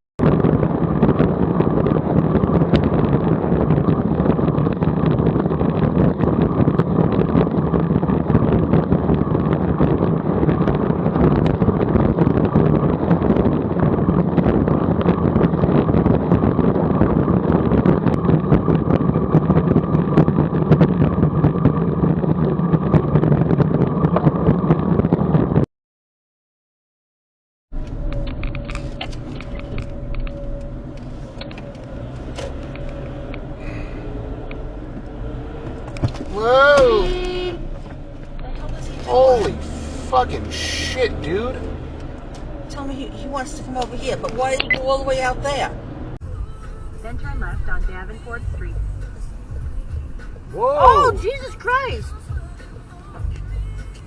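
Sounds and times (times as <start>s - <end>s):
car engine and road drone: 27.7s - 53.8s.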